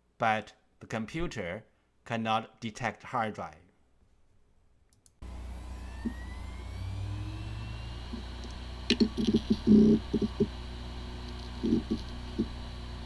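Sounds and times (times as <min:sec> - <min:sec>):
hard drive heads ticking: 0:05.2 - 0:13.0
hard drive spinning up: 0:05.2 - 0:13.0.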